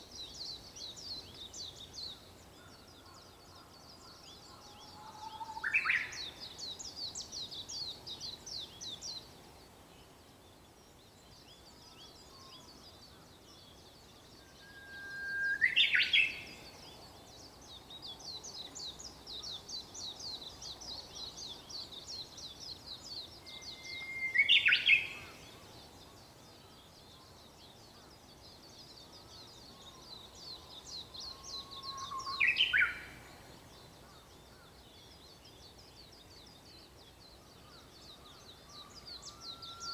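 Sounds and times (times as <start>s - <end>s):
bird whistled song with flourish: 14.6s - 16.6s, 23.2s - 25.4s, 31.2s - 33.2s.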